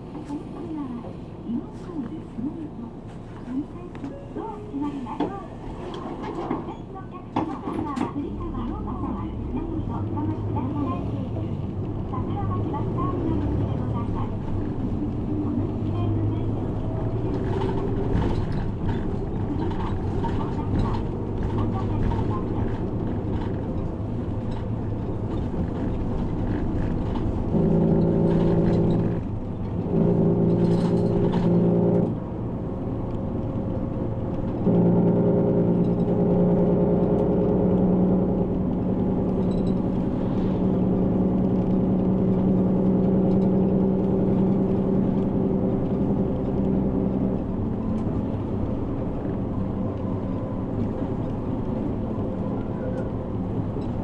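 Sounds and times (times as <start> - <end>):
bus engine from inside cabin: 0.0 - 54.0.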